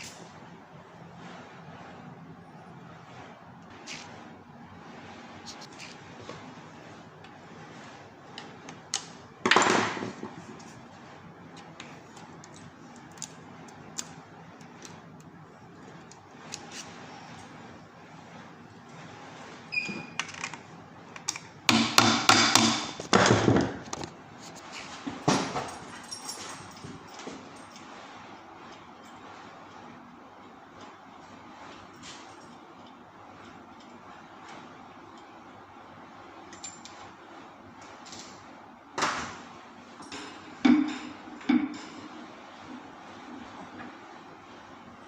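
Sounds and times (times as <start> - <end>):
loud knocks and clanks: 21.7 - 23.9.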